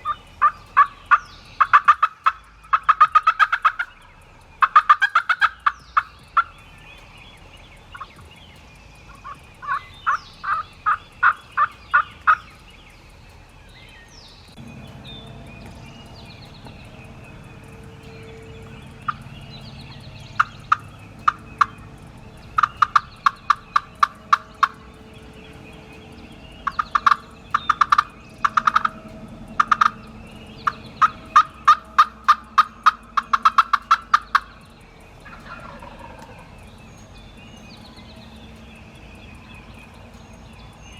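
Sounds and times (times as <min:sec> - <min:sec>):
turkey yelping: 0:00.0 - 0:04.0, 0:04.6 - 0:06.6, 0:09.1 - 0:12.7, 0:18.9 - 0:25.4, 0:26.6 - 0:34.6, 0:35.2 - 0:36.6.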